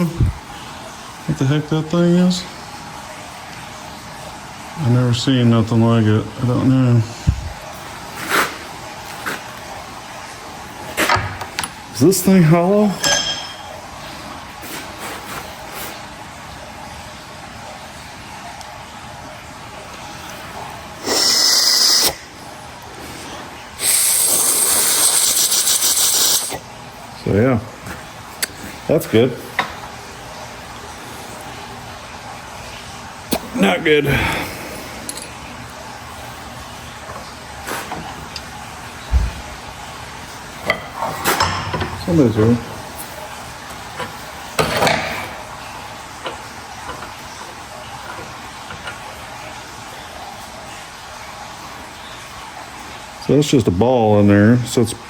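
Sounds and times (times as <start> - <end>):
loud hissing spray: 21.0 - 22.2, 23.8 - 26.6.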